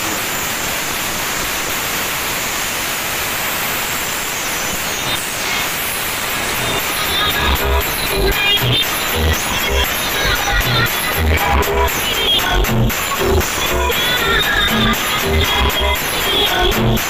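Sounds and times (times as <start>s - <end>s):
loud steady rushing noise: 0.0s - 17.0s
thumping bass beats of music: 6.6s - 17.0s.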